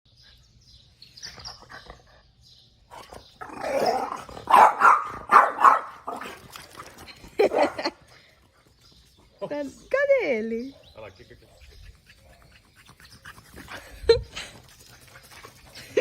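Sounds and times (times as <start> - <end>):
dog barking: 4.4 - 6.3.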